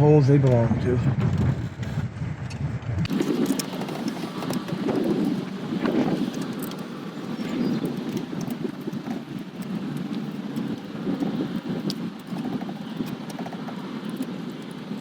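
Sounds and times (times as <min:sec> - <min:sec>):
deep rumble: 0:00.0 - 0:11.9
wind buffeting microphone: 0:00.0 - 0:15.0.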